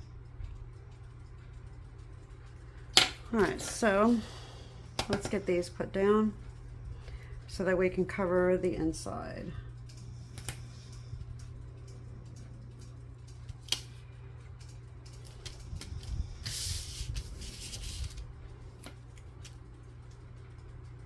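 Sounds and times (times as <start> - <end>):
steady low hum: 0.0 - 21.0
paper rustling: 16.5 - 18.2.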